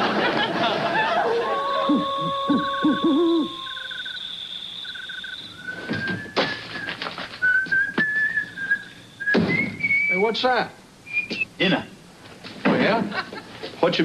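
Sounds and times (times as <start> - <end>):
owl hooting: 1.2 - 6.7
high insect chirping: 1.3 - 11.9
person whistling a tune: 1.7 - 4.2, 5.5 - 10.2
sharp knocks: 9.3 - 9.8.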